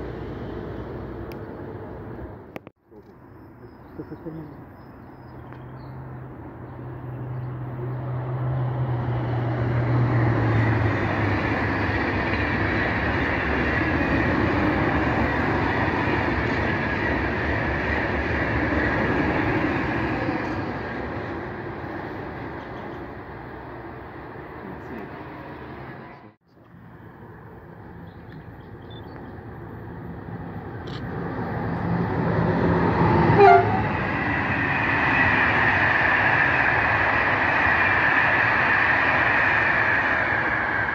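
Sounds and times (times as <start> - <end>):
train low hum: 0.0 - 40.9
rush of wheels and air: 29.6 - 40.9.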